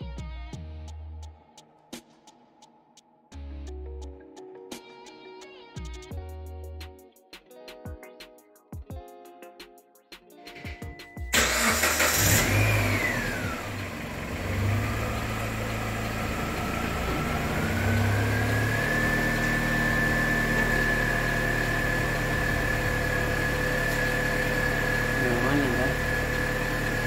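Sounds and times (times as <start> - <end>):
car engine cranking: 11.3 - 27.0
car engine idling with whine: 11.3 - 27.0.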